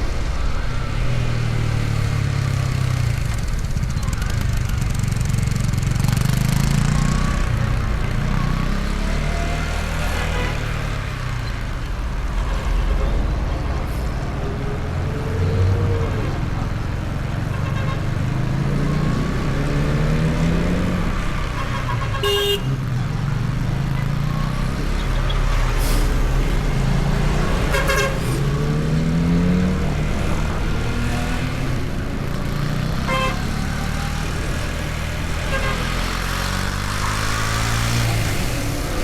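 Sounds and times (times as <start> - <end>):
wind and road rush: 0.0 - 39.0
vehicle horn toots: 21.5 - 22.8, 27.7 - 28.4, 33.0 - 33.6, 35.5 - 36.1.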